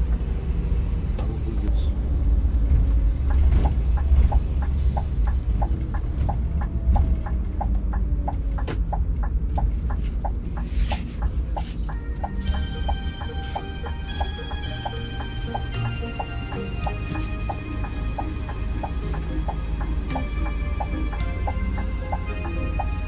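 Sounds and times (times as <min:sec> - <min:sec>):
bus engine rumble: 0:00.0 - 0:23.0
electronic pip: 0:11.9 - 0:23.0.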